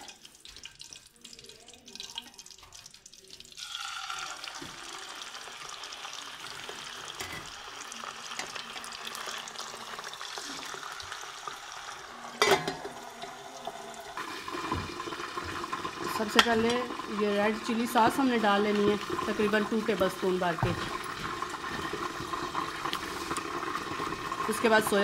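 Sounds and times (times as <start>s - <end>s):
chicken frying in oil: 0.0s - 25.0s
metal lid clanking on wok: 12.4s - 13.0s.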